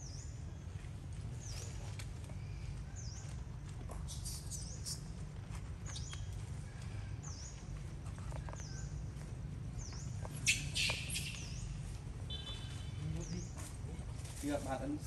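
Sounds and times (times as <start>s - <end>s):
bird chirping: 4.1s - 5.1s, 9.8s - 13.6s.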